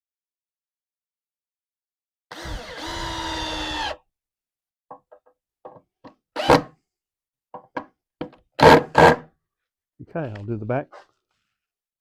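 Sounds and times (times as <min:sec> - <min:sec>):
power drill whining: 0:02.3 - 0:04.0.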